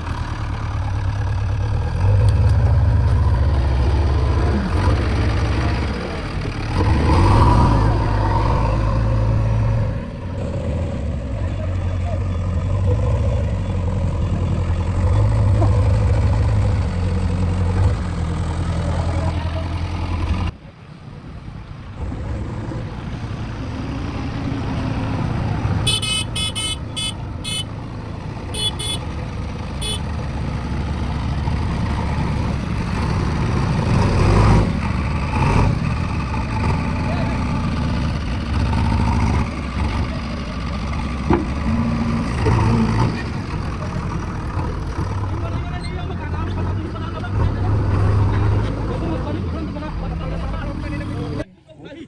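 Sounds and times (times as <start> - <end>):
diesel engine running: 0.0 - 51.5
vehicle horn beeps: 25.8 - 27.8, 28.5 - 30.1.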